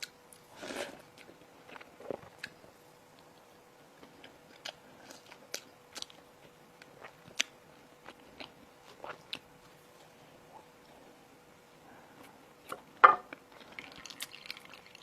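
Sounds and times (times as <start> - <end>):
chewing crisp bread: 4.0 - 6.2, 6.8 - 10.1.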